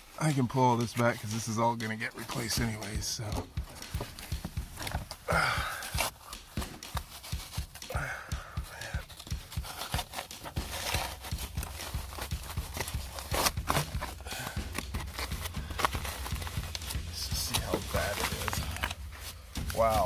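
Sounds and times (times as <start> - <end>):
duct wrap rustling and tearing: 9.2 - 20.0.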